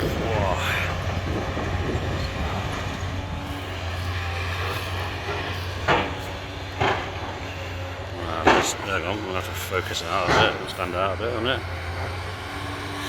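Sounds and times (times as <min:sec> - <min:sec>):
excavator diesel engine drone: 0:00.0 - 0:13.0
sharp knocks: 0:05.8 - 0:07.4, 0:08.4 - 0:09.2, 0:10.1 - 0:10.8.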